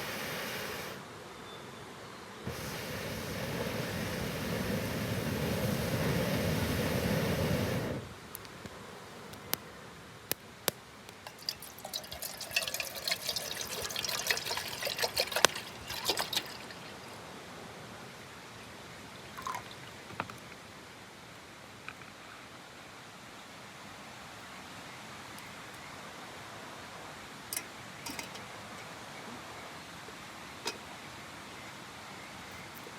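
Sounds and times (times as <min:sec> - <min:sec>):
water being poured: 0:11.2 - 0:17.2, 0:19.4 - 0:19.9.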